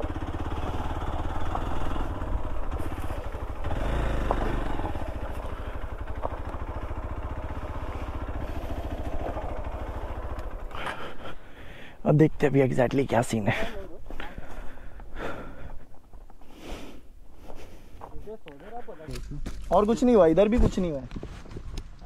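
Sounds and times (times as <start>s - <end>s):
motorcycle engine idling: 0.0s - 16.2s.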